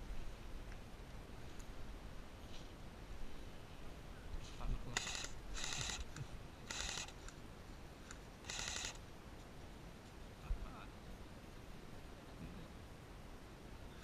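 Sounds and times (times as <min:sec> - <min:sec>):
airsoft gun full-auto bursts: 0:04.9 - 0:07.2, 0:08.4 - 0:09.0.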